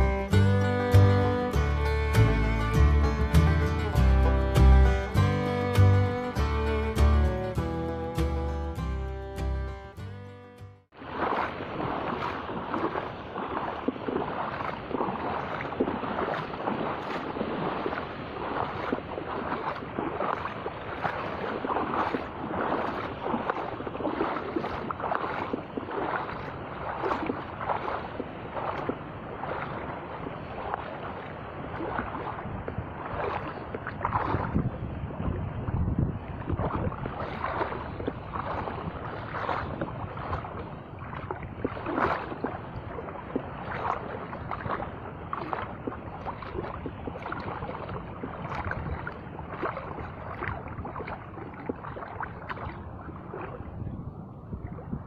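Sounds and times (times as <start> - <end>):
short sharp splashes: 0.0 - 53.7
surf washing in heavy waves: 10.9 - 53.9
wind buffeting microphone: 11.0 - 55.0.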